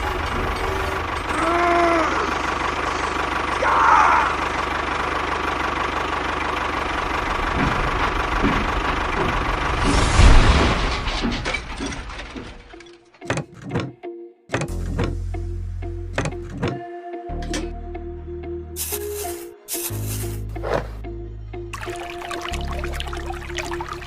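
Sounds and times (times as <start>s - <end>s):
small engine running: 0.0s - 9.9s.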